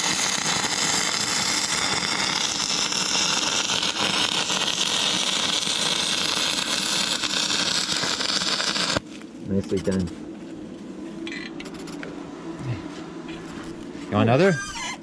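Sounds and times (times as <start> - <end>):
welding arc sizzling crackle: 0.0 - 10.2.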